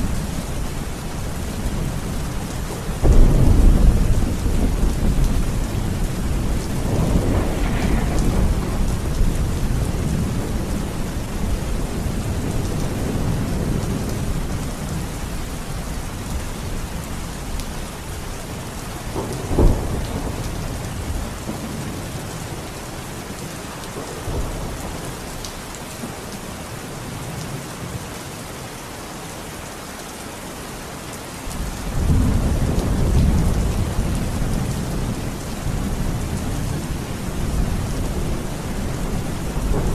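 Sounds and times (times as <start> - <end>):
steady rain: 0.0 - 39.9
rolling thunder: 2.9 - 15.2, 19.0 - 22.8, 31.5 - 39.9
sharp thunderclap: 3.0 - 14.1, 19.1 - 22.6.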